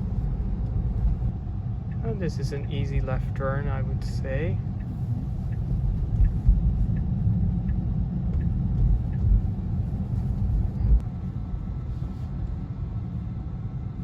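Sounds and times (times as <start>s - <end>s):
turn signal ticking: 0.0s - 11.0s
road and tyre rumble: 0.0s - 14.0s.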